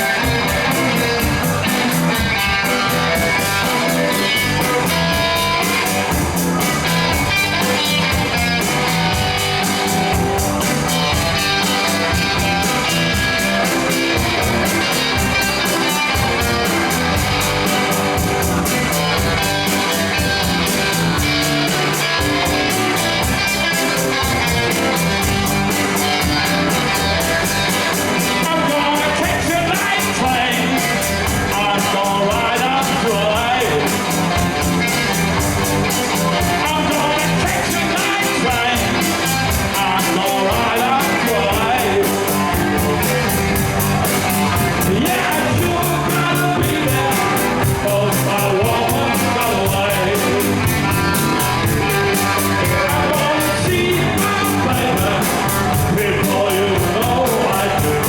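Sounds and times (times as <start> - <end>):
drum kit beat: 0.0 - 58.0
electric guitar: 0.0 - 58.0
person singing: 28.2 - 34.2, 35.9 - 43.4, 44.6 - 58.0.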